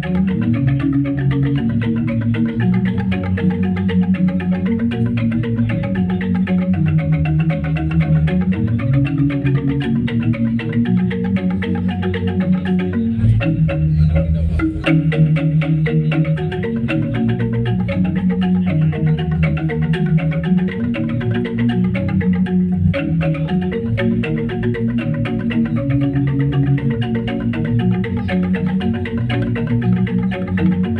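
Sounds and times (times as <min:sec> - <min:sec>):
metallophones in interlocking patterns: 0:00.0 - 0:30.9.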